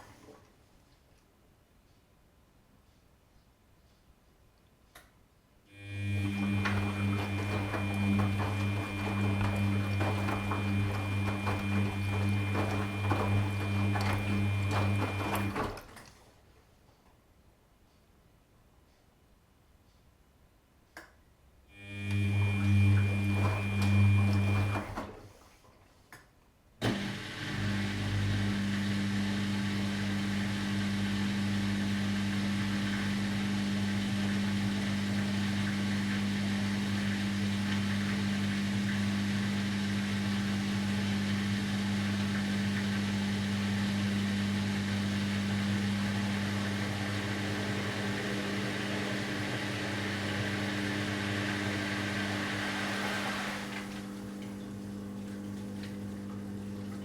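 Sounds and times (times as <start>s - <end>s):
washing machine humming: 5.7s - 16.1s, 21.7s - 25.6s, 26.8s - 57.0s
washing machine whooshing: 5.8s - 16.0s, 21.8s - 25.6s, 26.8s - 57.0s
washing machine motor click: 6.3s - 16.0s.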